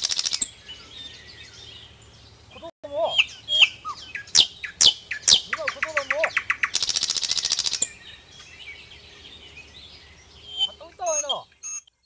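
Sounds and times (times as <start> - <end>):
buzzy rattling bird trill: 0.0 - 0.6, 3.2 - 8.0
faint bird chirps: 0.0 - 12.0.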